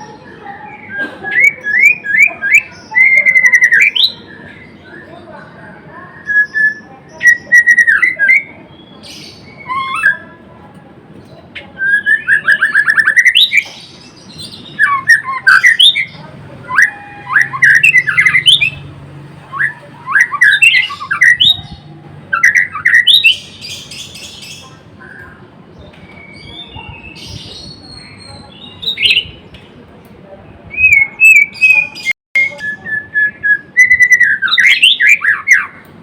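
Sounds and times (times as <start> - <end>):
bird singing whistled song: 0.0 - 5.1, 6.1 - 10.3, 11.8 - 25.2, 25.8 - 29.4, 30.7 - 35.8.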